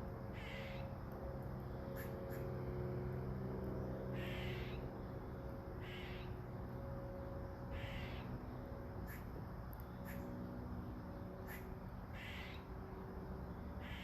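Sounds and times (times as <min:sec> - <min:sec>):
steady low hum: 0:00.0 - 0:14.0
bird calling: 0:00.4 - 0:00.9, 0:04.2 - 0:04.9, 0:05.8 - 0:06.4, 0:07.7 - 0:08.3, 0:11.4 - 0:12.7.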